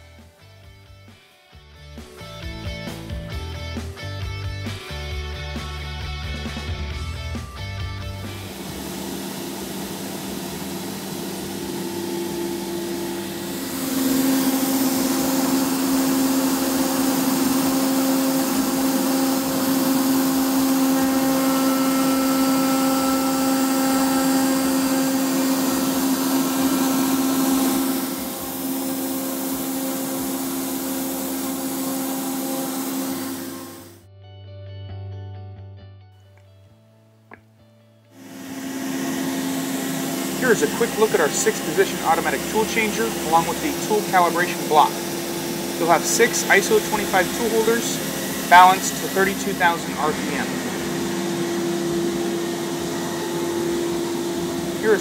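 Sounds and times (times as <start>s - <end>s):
cnc router whine and cutting: 8.4s - 34.0s, 38.2s - 55.0s.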